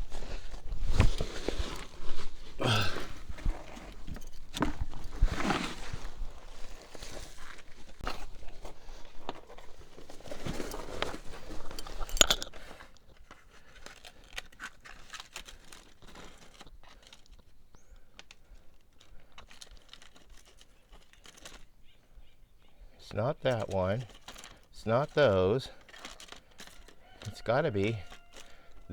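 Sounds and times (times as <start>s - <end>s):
hands rummaging through packaging: 0.0s - 21.8s, 23.5s - 28.9s
packaging crinkling: 13.1s - 17.5s, 18.1s - 21.7s, 23.6s - 24.7s, 25.6s - 28.9s.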